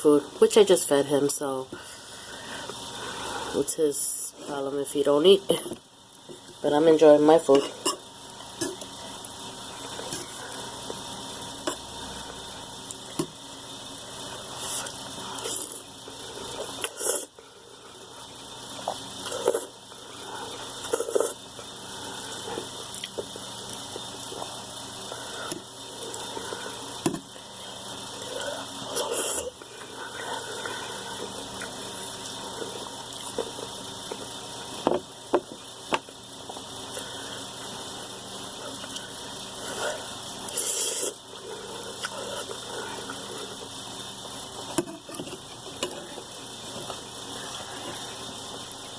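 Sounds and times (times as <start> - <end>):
person eating noodles: 18.8 - 19.8, 20.5 - 21.4, 40.5 - 43.7.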